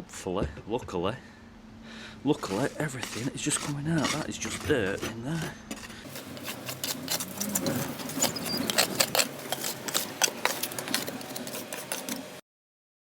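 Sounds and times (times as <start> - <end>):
steel bar scraping patio joints: 2.2 - 12.4.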